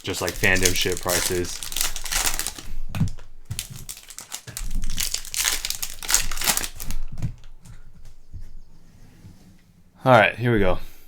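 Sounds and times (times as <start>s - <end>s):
foil wrappers crinkling and tearing: 0.0s - 7.6s.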